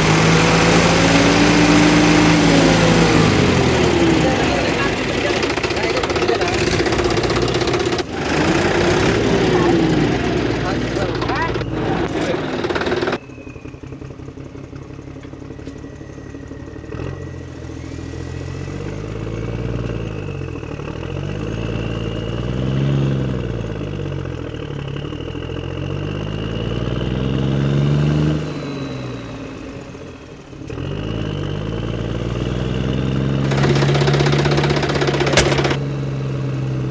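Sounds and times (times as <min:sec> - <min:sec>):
engine revving: 0:00.0 - 0:36.9
rattling clatter: 0:03.7 - 0:13.3, 0:33.4 - 0:35.8.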